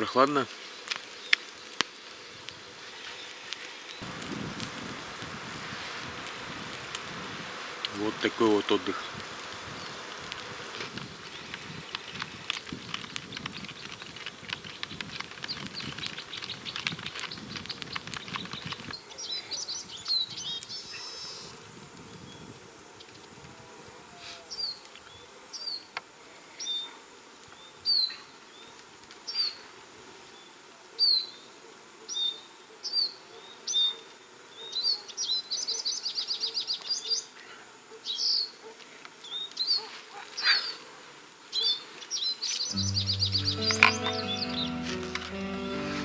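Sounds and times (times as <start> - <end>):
songbird calling and trilling: 42.6 - 44.8
background music: 42.8 - 46.0.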